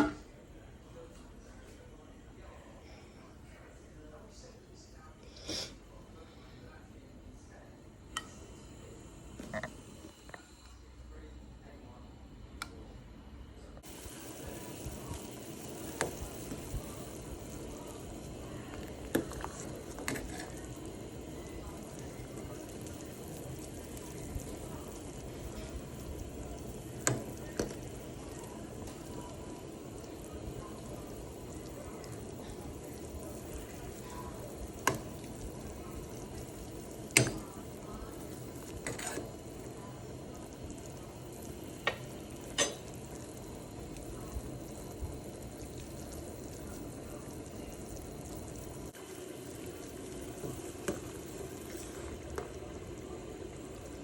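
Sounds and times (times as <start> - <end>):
chicken sizzling in a pot: 13.8 - 54.0
utensil clinking against pot: 41.8 - 42.9.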